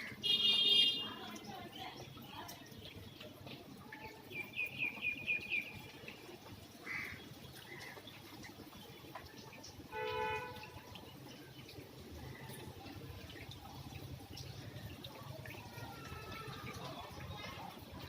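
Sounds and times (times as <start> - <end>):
bird chirping: 4.3 - 6.1.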